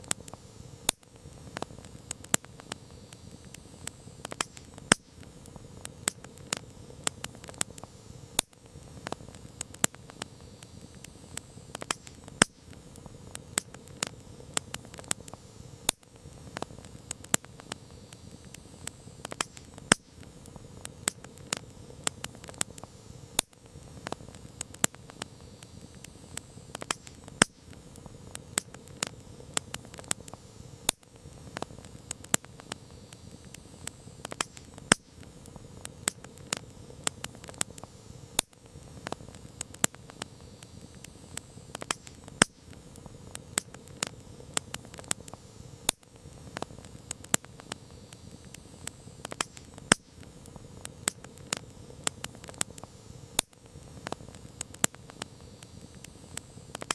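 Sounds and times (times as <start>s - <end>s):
campfire crackling and popping: 0.0s - 56.9s.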